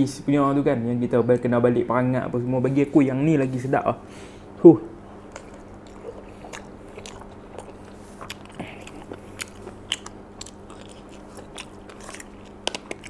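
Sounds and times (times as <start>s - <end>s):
man chewing food: 5.0s - 13.0s
eating clicks and smacks: 5.3s - 13.0s.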